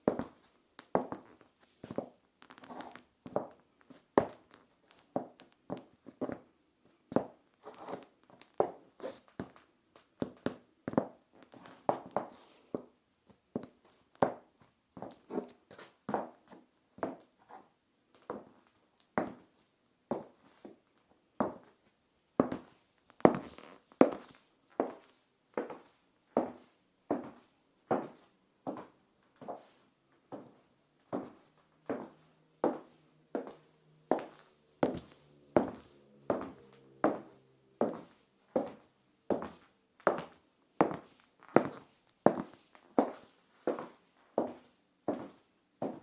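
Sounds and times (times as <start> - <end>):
high heels clicking on tiles: 30.3 - 46.0.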